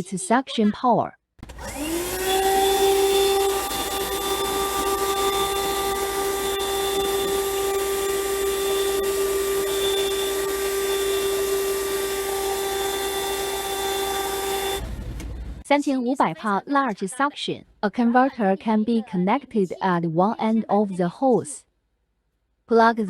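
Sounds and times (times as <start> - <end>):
vacuum cleaner motor whine: 1.4 - 15.6.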